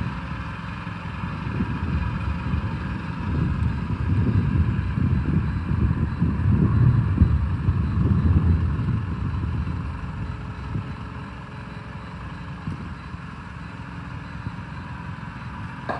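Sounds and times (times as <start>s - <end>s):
truck diesel engine running: 0.0s - 15.9s
wind buffeting microphone: 1.1s - 13.3s.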